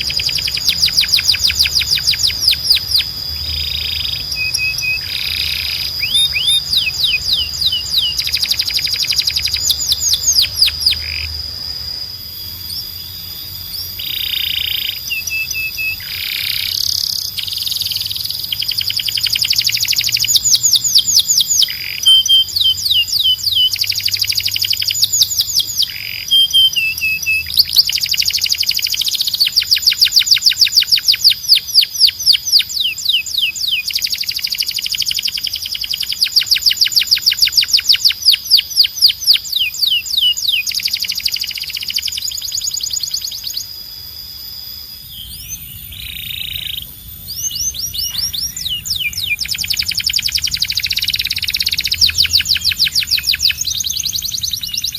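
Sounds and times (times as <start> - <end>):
steady high held tone: 0.0 - 18.2, 41.9 - 54.9
canary singing trills: 0.0 - 54.9.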